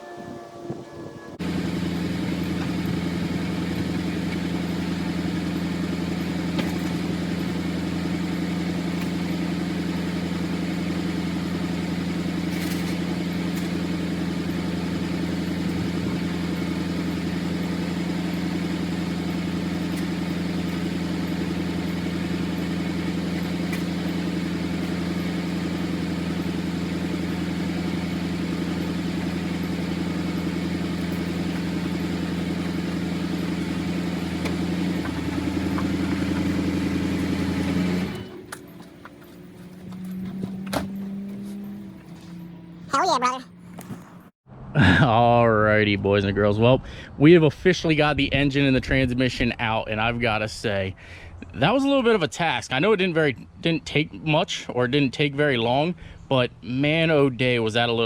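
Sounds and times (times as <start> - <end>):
pickup truck engine idling: 1.4 - 44.2.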